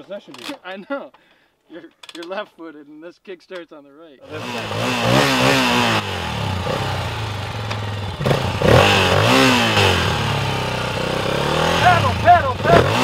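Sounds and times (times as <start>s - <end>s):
dirt bike engine revving: 4.2s - 13.0s.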